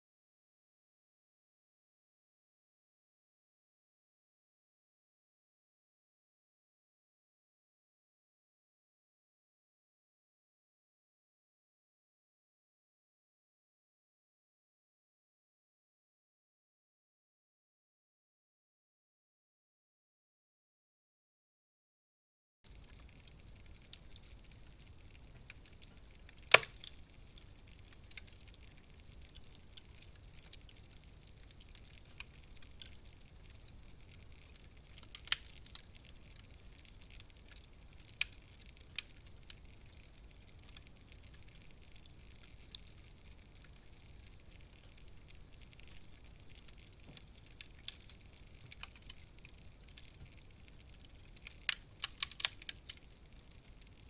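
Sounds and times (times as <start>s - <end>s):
wood fire crackling: 22.6s - 54.0s
fire popping: 22.7s - 54.0s.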